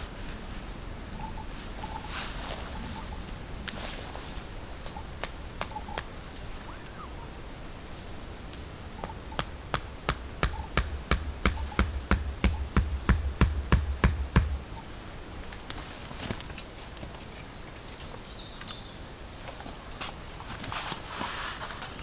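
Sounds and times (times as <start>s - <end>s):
high bird chirps: 6.6s - 7.3s
sharp taps: 9.0s - 14.7s.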